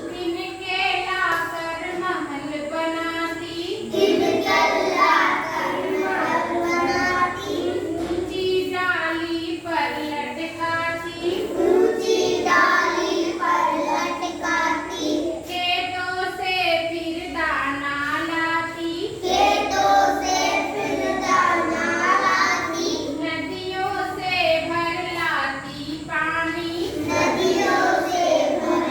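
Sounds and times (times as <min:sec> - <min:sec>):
child singing: 0:03.8 - 0:08.3, 0:11.2 - 0:15.6, 0:19.1 - 0:23.2, 0:26.6 - 0:28.9.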